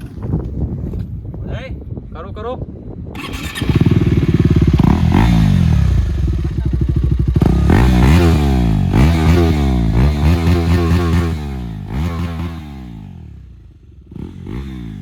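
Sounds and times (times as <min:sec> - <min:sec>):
loud motorcycle engine revving: 0:03.2 - 0:15.0.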